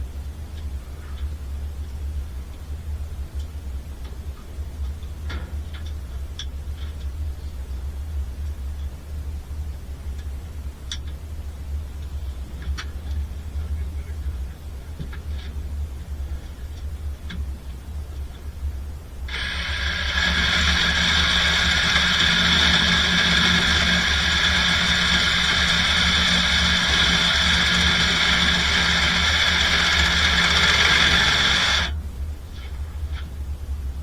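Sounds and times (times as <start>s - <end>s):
power saw cutting pipe: 19.3s - 31.9s
low hum: 19.3s - 32.0s.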